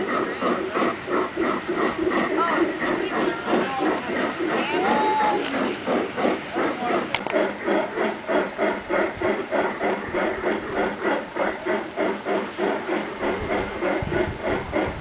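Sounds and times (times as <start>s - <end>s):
model steam locomotive chuffing: 0.0s - 15.0s.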